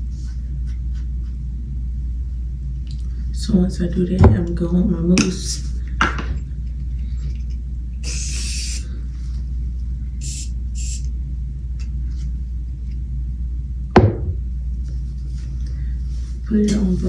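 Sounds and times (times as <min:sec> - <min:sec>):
steady low hum: 0:00.0 - 0:17.0
aerosol mousse hissing: 0:08.0 - 0:08.9, 0:10.2 - 0:11.1
sharp knock: 0:14.0 - 0:14.4.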